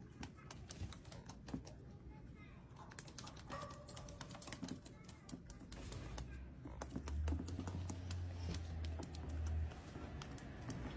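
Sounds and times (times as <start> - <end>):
light clicks and taps: 2.8 - 10.9.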